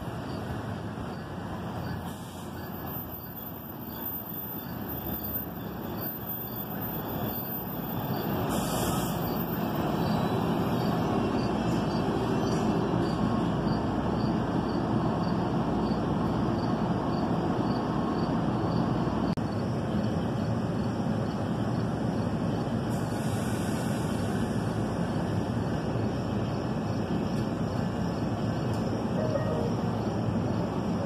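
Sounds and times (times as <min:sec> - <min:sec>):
train wheels rumbling on rail: 0:00.0 - 0:31.0
short hiss: 0:08.5 - 0:09.2, 0:22.9 - 0:24.6.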